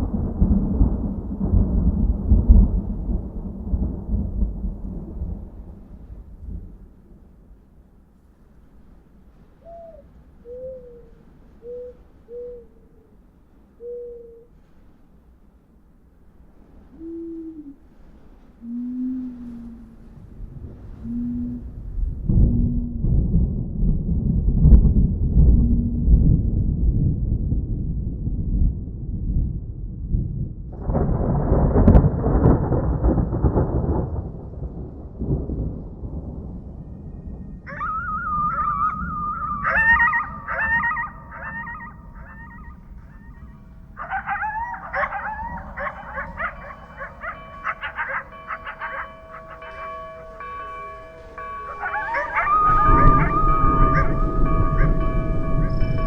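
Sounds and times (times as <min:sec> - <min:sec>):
sharp thunder cracks: 0:00.0 - 0:07.0, 0:30.7 - 0:56.0
rolling thunder: 0:00.0 - 0:07.5, 0:20.2 - 0:56.0
low steady rumble: 0:18.7 - 0:37.7, 0:38.7 - 0:56.0.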